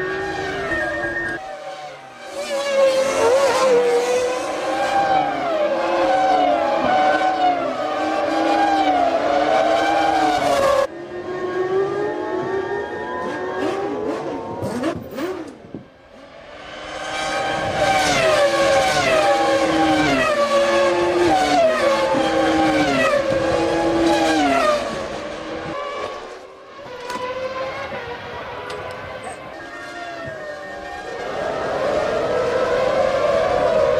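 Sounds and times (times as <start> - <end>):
racing car engines revving: 0.0 - 33.9
racing cars passing by: 0.0 - 33.9.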